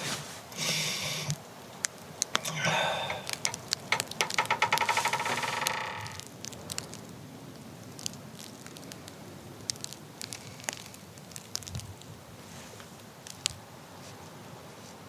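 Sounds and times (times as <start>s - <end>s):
wood fire crackling: 0.0s - 13.7s
steady low hiss: 0.0s - 15.0s.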